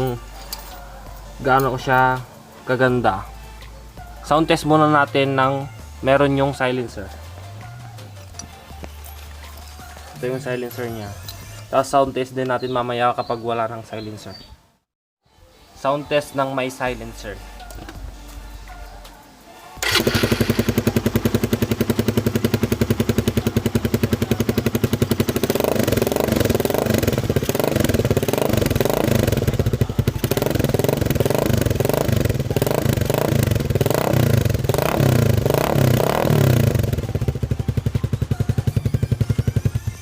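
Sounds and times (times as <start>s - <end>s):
motorcycle engine idling and revving: 2.9s - 10.2s, 19.8s - 40.0s.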